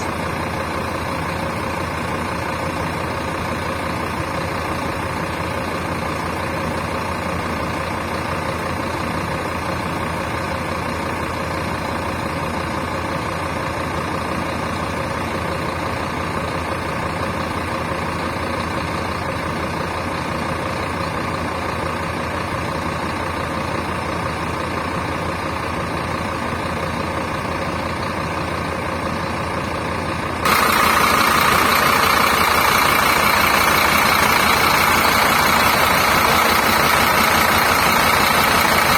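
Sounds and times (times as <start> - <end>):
diesel engine idling: 0.0 - 38.9
loud steady rushing: 27.7 - 38.9.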